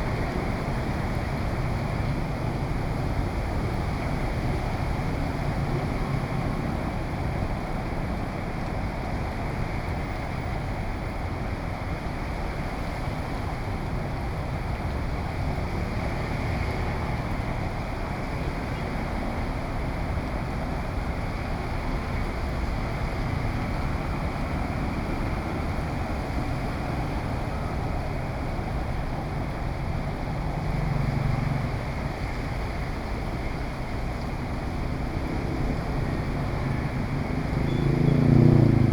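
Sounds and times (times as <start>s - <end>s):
heavy rain: 15.9s - 38.9s.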